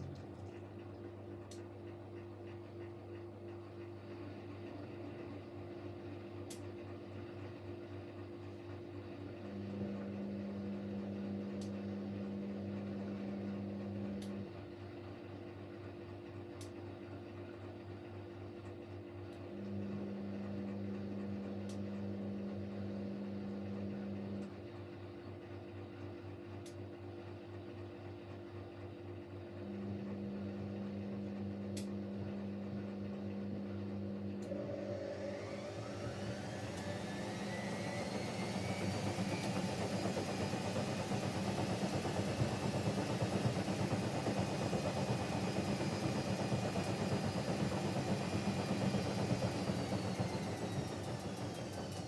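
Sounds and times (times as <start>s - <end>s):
washing machine drum motor running: 0.0s - 5.5s, 29.6s - 52.0s
washing machine hum: 0.0s - 52.0s.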